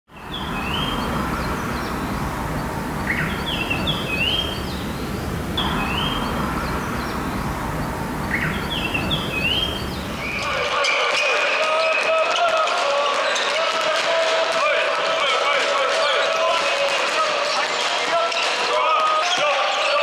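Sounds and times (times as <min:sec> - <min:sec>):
steady low rumble: 0:00.1 - 0:10.5
songbird whistling: 0:00.2 - 0:02.2, 0:03.0 - 0:10.5.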